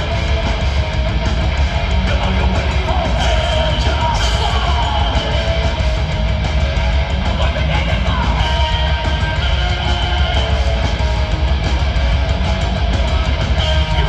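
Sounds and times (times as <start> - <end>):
bass: 0.0 - 14.0
distorted electric guitars: 0.0 - 14.0
pounding drums: 0.0 - 14.0.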